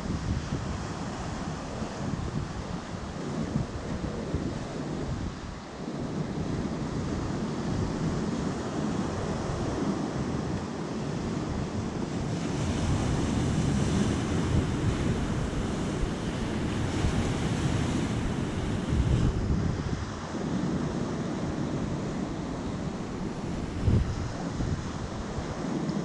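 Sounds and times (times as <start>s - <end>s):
sea surf on shore: 0.0s - 26.0s
wind buffeting microphone: 0.0s - 26.0s.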